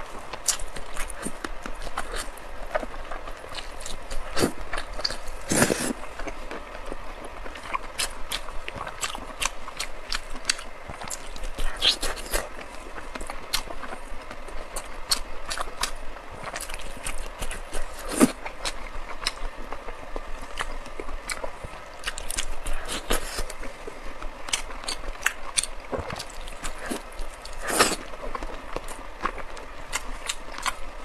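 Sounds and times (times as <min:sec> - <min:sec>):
chewing and lip-smacking: 0:07.4 - 0:23.8, 0:24.5 - 0:30.8.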